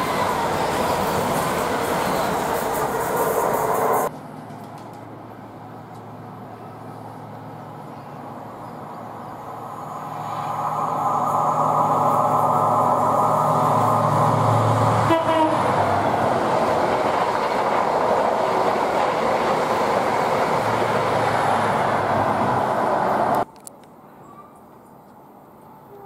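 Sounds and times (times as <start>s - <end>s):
train coaches rushing by: 0.0s - 23.5s
train horn toot: 15.0s - 15.8s.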